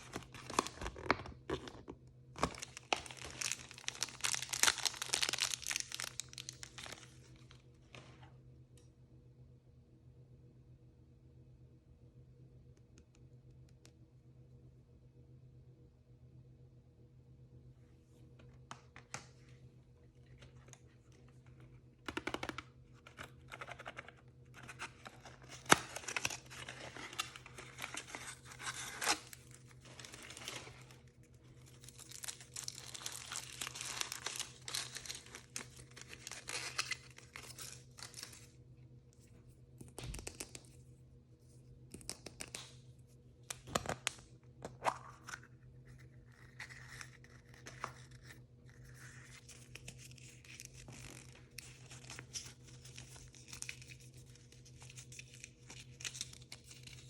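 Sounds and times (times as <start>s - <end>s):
packaging torn and crinkled: 0.0s - 1.8s, 2.4s - 7.5s, 24.6s - 38.5s, 46.4s - 57.0s
faint steady hum: 0.0s - 57.0s.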